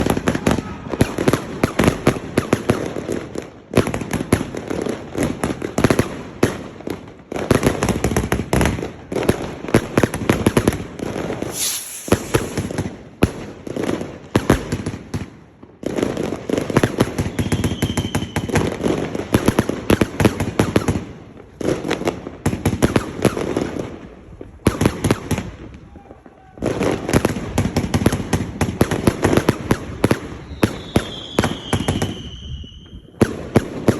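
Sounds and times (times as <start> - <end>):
fireworks firing rapid volleys: 11.4 - 12.8.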